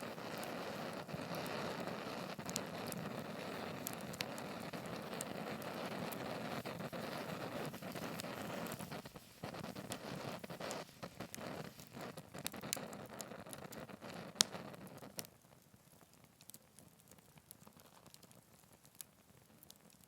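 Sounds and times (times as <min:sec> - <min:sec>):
rushing flame: 0:00.0 - 0:15.2
fire crackles and pops: 0:00.0 - 0:20.0.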